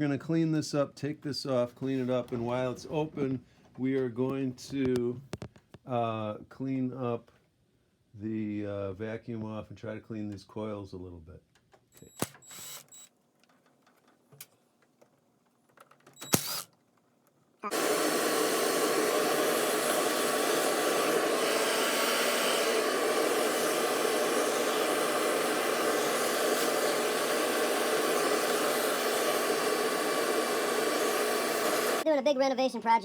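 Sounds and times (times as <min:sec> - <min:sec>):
vacuum cleaner running: 0:17.6 - 0:32.1.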